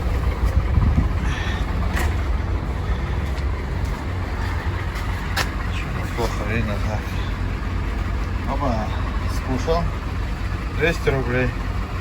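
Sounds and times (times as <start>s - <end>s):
truck engine running low: 0.0s - 12.0s.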